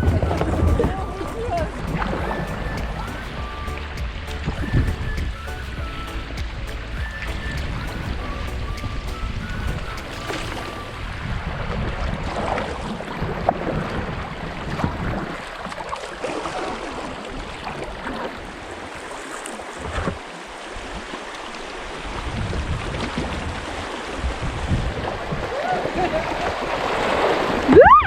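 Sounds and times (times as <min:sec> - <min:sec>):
short splashes: 0:00.0 - 0:14.0
river water rushing: 0:00.0 - 0:28.0
wind rumble on microphone: 0:00.0 - 0:28.0.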